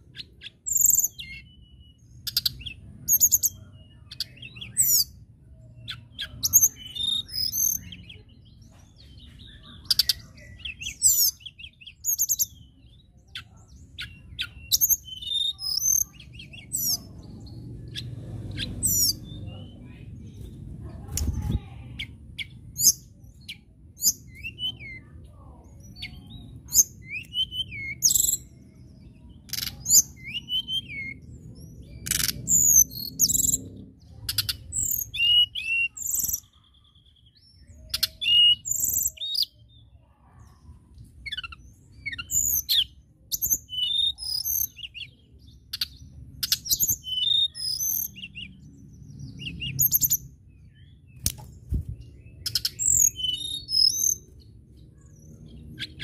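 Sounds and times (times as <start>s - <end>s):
bird singing whistled notes: 0.1s - 19.7s, 22.0s - 25.1s, 25.8s - 33.6s, 34.3s - 39.8s, 41.2s - 56.0s.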